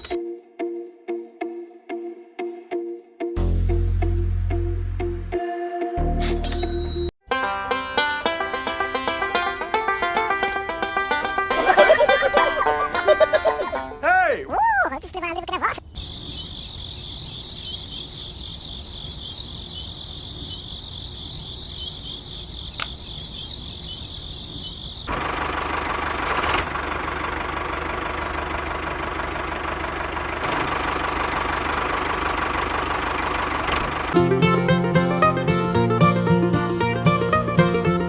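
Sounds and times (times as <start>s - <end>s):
insects chirping: 15.8s - 25.3s
low engine rumble: 25.1s - 37.9s.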